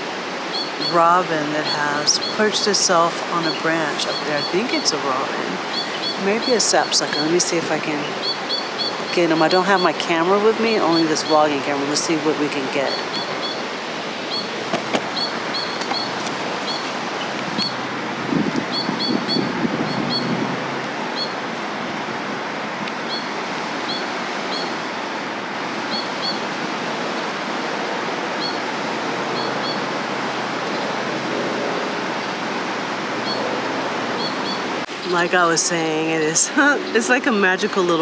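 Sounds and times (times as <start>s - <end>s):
bird chirping: 0.0s - 17.8s, 18.6s - 20.4s, 21.1s - 21.4s, 23.0s - 24.8s, 25.8s - 26.5s, 28.4s - 28.6s, 29.3s - 29.8s, 34.2s - 38.0s
river rushing: 0.0s - 38.0s.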